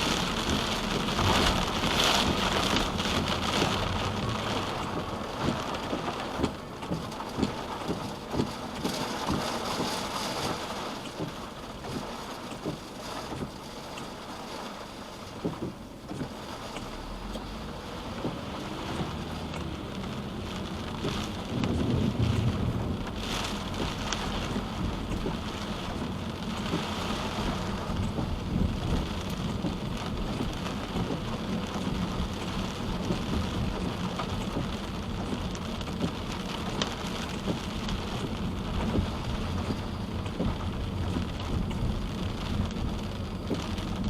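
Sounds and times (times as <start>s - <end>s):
rain hissing on a car: 0.0s - 44.0s
road noise: 0.0s - 44.0s.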